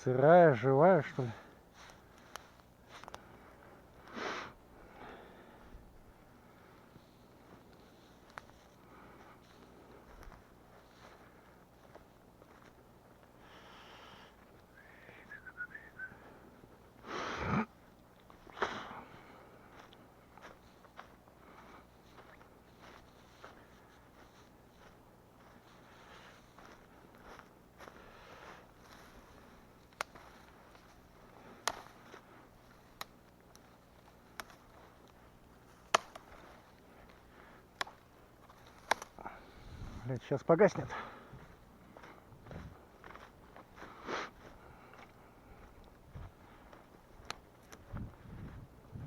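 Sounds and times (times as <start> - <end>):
firewood whistling: 14.7 - 16.4
wood snapping: 35.9 - 36.3, 38.6 - 39.2.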